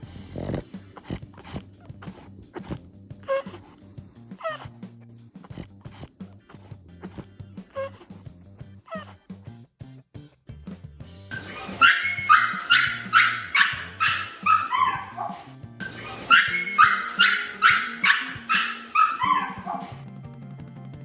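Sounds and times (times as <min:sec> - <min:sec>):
music: 0:00.0 - 0:21.0
dog yipping: 0:11.3 - 0:20.0.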